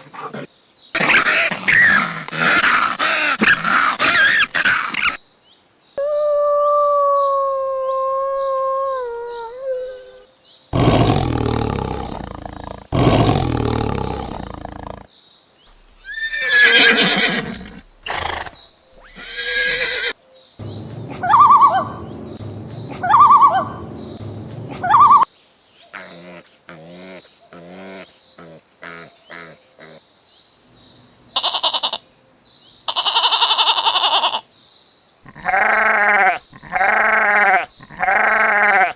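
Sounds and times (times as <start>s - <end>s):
howl-like animal call: 6.0s - 10.3s
harsh animal calls: 10.7s - 15.1s, 15.7s - 25.3s, 35.3s - 38.9s
whinnying calls: 10.8s - 15.1s, 15.7s - 22.0s, 35.3s - 38.9s
short repeated animal calls: 15.7s - 20.1s.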